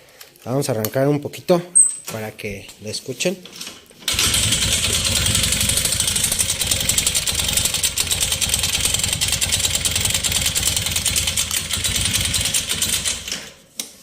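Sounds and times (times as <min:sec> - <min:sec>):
motorcycle engine idling with clatter: 0:04.1 - 0:13.5.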